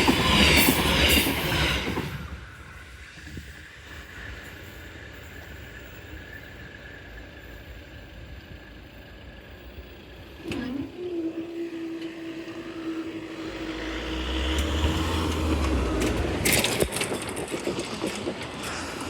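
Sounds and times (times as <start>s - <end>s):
vehicle rumble passing by: 13.1s - 16.8s.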